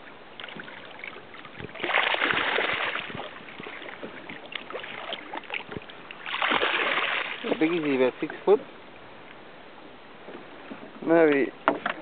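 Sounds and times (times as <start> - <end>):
water splashing against boat: 0.0 - 8.7.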